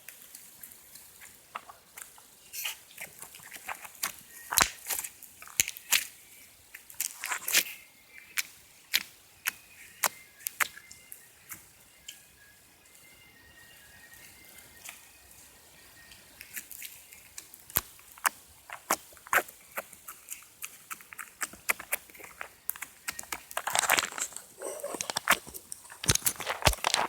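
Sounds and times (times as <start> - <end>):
slime squished by hand: 1.5 - 6.1.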